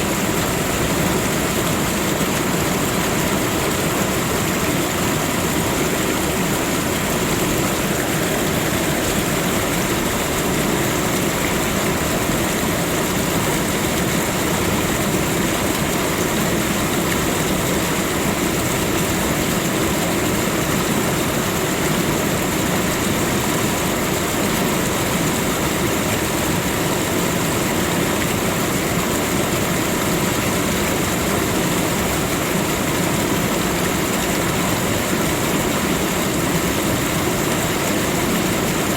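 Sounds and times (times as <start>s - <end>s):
rushing water: 0.0s - 38.9s.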